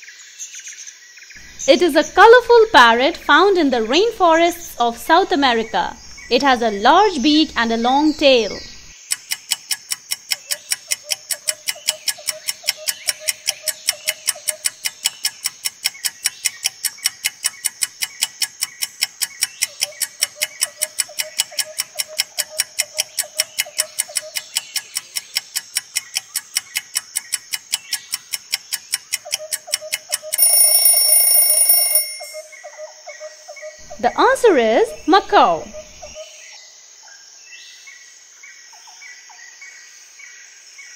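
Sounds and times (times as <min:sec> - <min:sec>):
clock ticking: 0:01.6 - 0:32.5
loud ringing alarm: 0:30.2 - 0:32.5.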